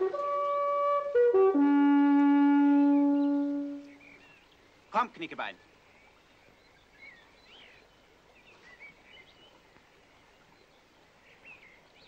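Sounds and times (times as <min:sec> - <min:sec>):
steady low hiss: 0:00.0 - 0:12.0
faint birds chirping: 0:02.4 - 0:12.0.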